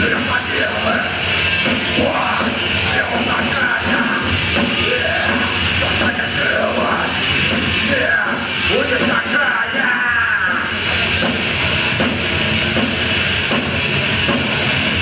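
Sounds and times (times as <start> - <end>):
rock band playing: 0.0 - 15.0
person singing: 1.9 - 7.2.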